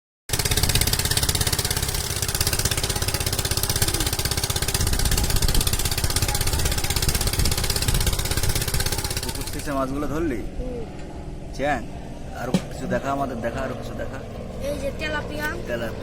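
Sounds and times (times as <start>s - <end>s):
water pump engine running: 0.3s - 9.9s.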